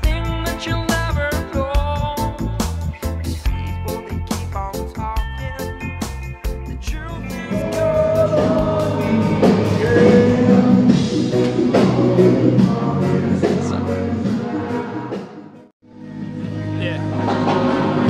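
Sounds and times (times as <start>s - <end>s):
live reggae band: 0.0s - 15.7s
person singing long notes: 7.1s - 14.9s.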